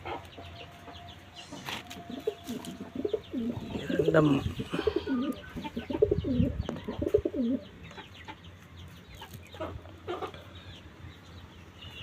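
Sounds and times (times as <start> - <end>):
pigeon cooing: 1.5 - 7.6.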